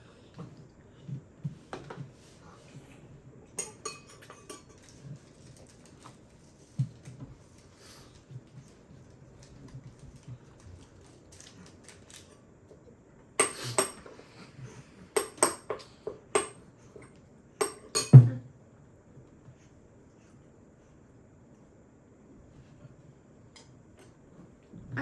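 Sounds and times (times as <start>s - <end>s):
cutlery and dishes clinking: 3.6s - 5.8s, 13.4s - 14.2s, 15.2s - 18.4s.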